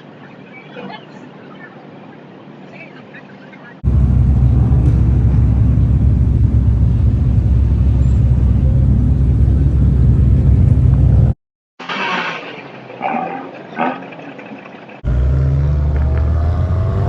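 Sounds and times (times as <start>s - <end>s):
car rumble: 3.8s - 11.4s, 15.0s - 17.0s.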